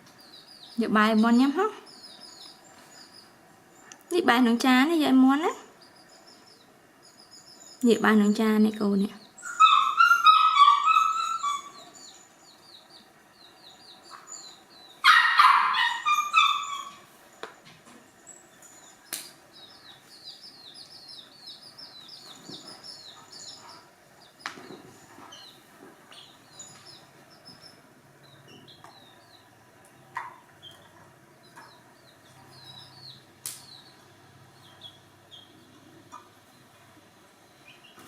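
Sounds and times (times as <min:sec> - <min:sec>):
chicks peeping: 0:00.0 - 0:04.0, 0:05.2 - 0:08.4, 0:09.1 - 0:38.0
hen squawking: 0:15.0 - 0:17.1.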